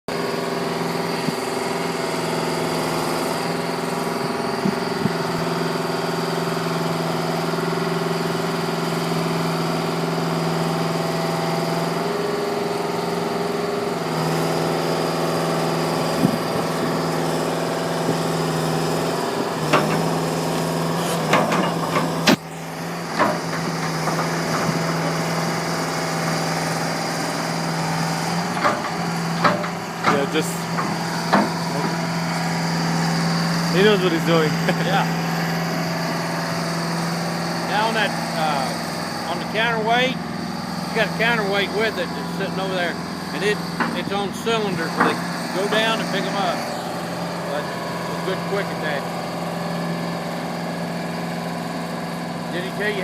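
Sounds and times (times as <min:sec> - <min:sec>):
excavator diesel engine running: 0:00.1 - 0:53.0
sharp metal knocks and clanks: 0:19.7 - 0:20.2, 0:21.0 - 0:22.4, 0:23.1 - 0:25.5, 0:28.5 - 0:32.0, 0:43.7 - 0:46.3.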